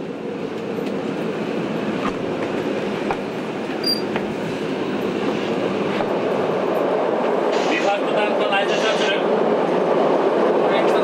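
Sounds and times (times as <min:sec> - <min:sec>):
train wheels rumbling on rail: 0:00.0 - 0:11.0
high squeak: 0:03.8 - 0:04.1.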